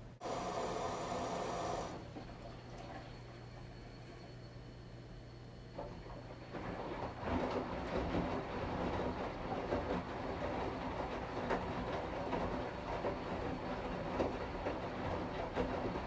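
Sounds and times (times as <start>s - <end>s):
washing machine drum churning: 5.8s - 16.0s.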